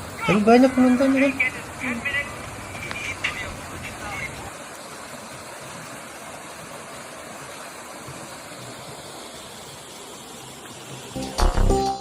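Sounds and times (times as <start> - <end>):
flowing water rushing: 0.0 - 12.0
music with a loud hit: 11.2 - 12.0.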